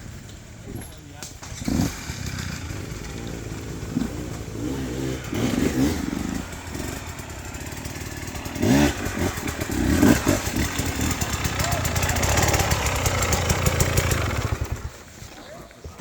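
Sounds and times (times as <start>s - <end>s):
dirt bike engine revving: 0.0s - 15.1s.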